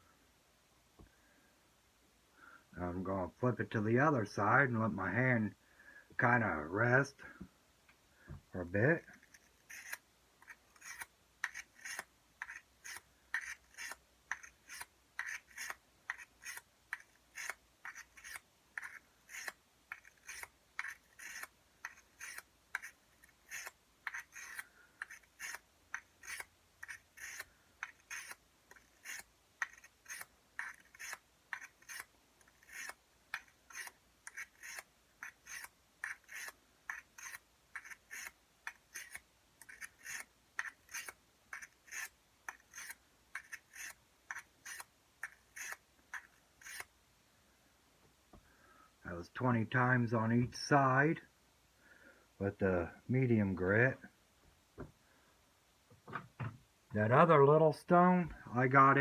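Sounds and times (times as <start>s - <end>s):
blade rasping on sharpening stone: 9.2s - 46.9s.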